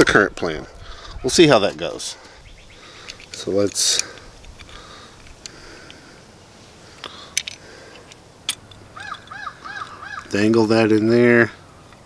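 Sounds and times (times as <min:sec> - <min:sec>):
bird calling repeated notes: 0:02.4 - 0:03.0, 0:08.9 - 0:10.4.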